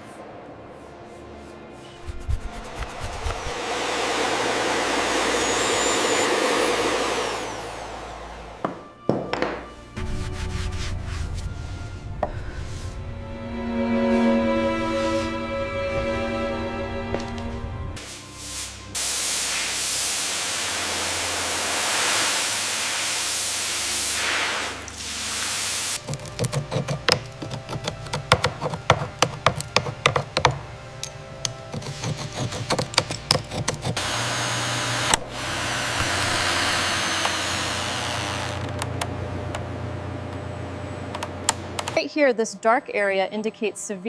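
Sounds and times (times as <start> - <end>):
tools tapping on wood: 8.6 - 9.7, 26.0 - 34.0
steady tool hiss: 18.0 - 26.0.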